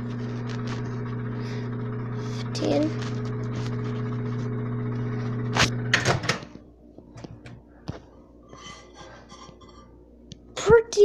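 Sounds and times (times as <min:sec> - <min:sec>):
microwave oven humming: 0:00.0 - 0:07.8.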